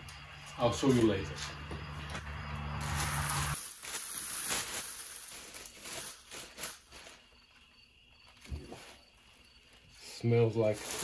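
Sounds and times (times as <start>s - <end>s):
plastic bag rustling and crinkling: 2.8s - 11.0s.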